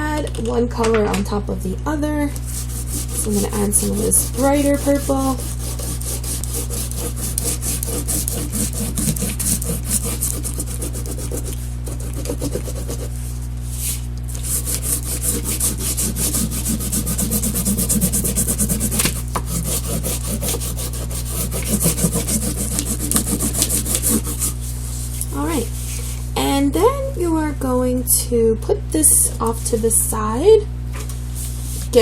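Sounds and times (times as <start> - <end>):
steady low hum: 0.0 - 32.0
crayon rubbing across paper: 2.5 - 24.7.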